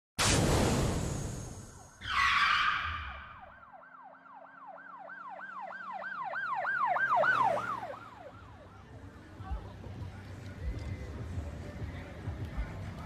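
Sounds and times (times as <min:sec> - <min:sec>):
siren wailing: 0:01.9 - 0:09.0.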